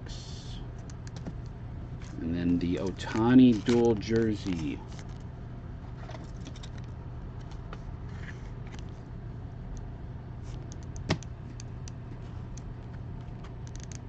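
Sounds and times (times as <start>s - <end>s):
low hum: 0.0s - 14.0s
cards rustling and ticking: 0.8s - 5.3s.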